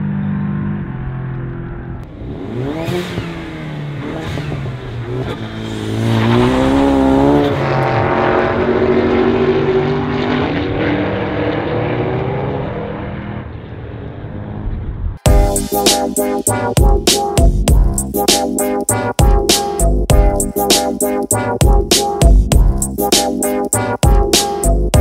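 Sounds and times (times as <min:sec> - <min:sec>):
car engine revving: 0:00.4 - 0:13.6.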